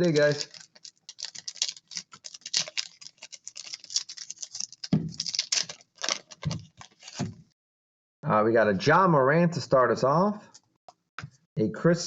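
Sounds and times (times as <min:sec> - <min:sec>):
plastic wrappers crinkling: 0:00.0 - 0:07.3.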